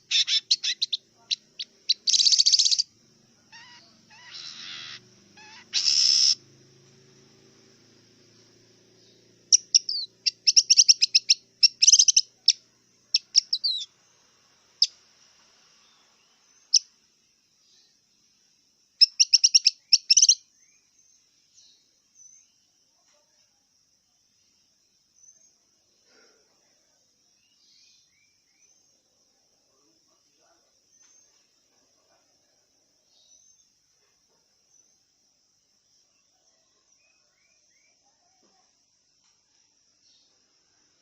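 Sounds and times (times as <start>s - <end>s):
shrike harsh rasping calls: 0.0s - 15.0s.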